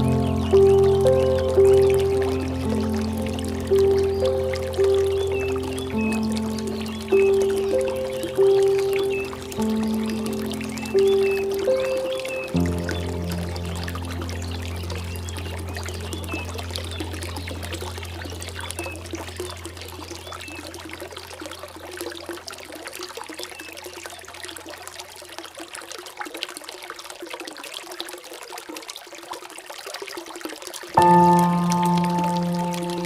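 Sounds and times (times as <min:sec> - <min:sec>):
low musical drone: 0:00.0 - 0:19.7, 0:31.0 - 0:33.0
water trickling and pouring: 0:00.0 - 0:33.0.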